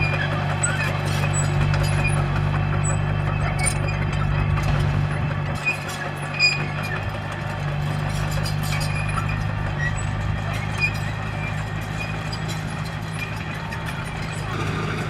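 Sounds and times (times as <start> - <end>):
short squeaks: 0.0 - 4.2, 5.5 - 7.1, 8.0 - 15.0
bulldozer diesel engine running: 0.0 - 15.0.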